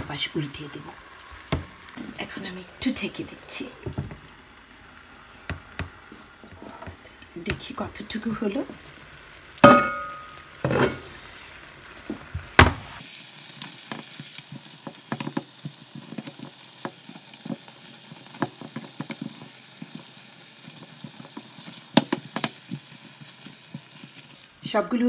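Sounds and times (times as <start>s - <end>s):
crackle of pops and spatters: 0.0s - 24.8s
chicken wings sizzling in pan: 0.0s - 25.0s
knocks against pan: 9.6s - 11.0s.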